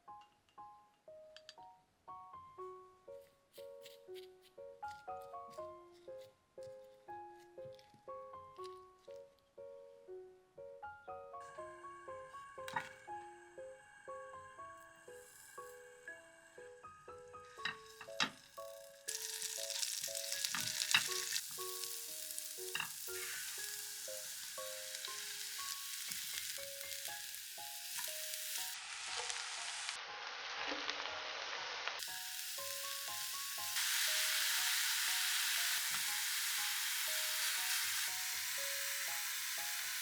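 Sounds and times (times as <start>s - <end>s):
light background music: 0.0s - 40.0s
food sizzling in a frying pan: 17.5s - 40.0s.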